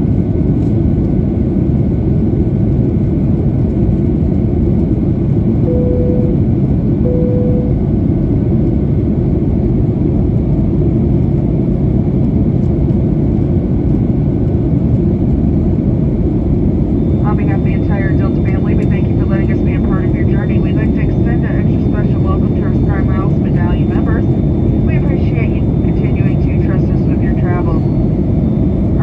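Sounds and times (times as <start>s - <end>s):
airliner cabin noise: 0.0s - 29.0s
short level beeps: 5.7s - 6.4s, 7.1s - 7.8s.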